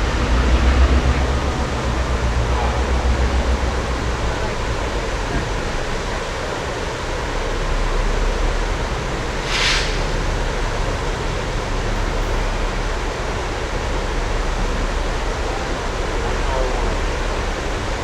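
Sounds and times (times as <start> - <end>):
diesel train running: 0.0 - 18.0
short burst of hiss: 9.4 - 10.3.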